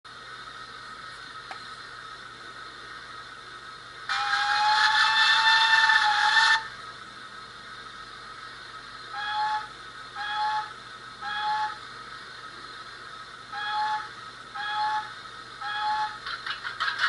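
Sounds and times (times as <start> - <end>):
steam whistle: 4.1 - 6.7, 9.1 - 11.8, 13.6 - 16.2.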